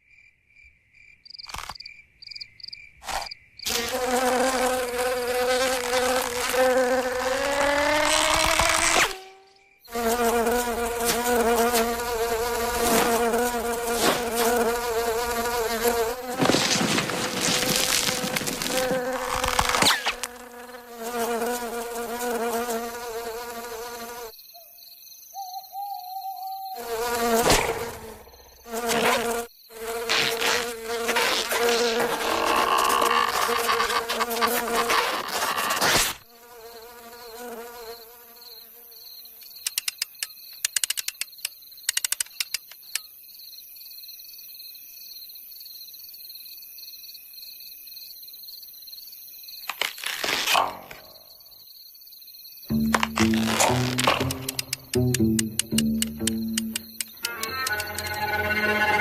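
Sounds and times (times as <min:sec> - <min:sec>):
cartoon insect wing buzzing: 0:03.1 - 0:24.3, 0:26.8 - 0:38.0, 0:52.7 - 0:59.0.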